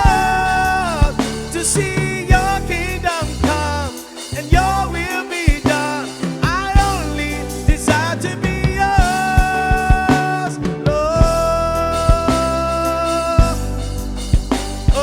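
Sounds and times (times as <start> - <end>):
bass: 0.0 - 15.0
drums: 0.0 - 15.0
sliding melodic lead line: 0.0 - 15.0.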